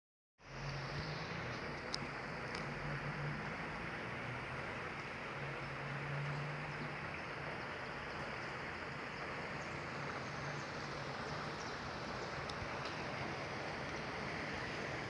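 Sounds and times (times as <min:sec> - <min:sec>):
heavy rain falling: 0:00.5 - 0:15.0.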